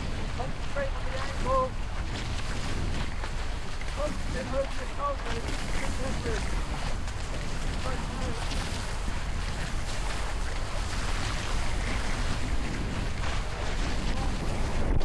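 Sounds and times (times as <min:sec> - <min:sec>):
water rushing along boat hulls: 0:00.0 - 0:15.0
wind buffeting microphone: 0:00.0 - 0:15.0.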